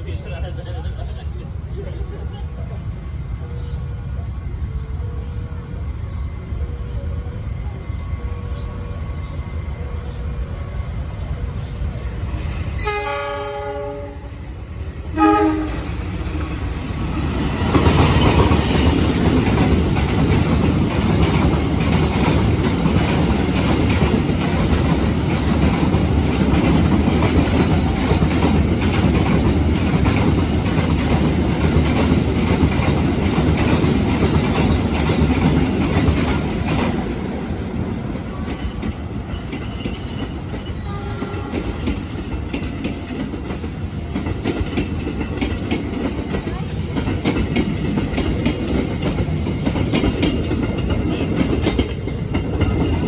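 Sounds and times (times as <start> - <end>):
train rumble: 0.0 - 53.0
train horn: 12.8 - 14.4, 15.1 - 16.1, 40.8 - 41.9
wheels clacking over rail joints: 15.4 - 53.0.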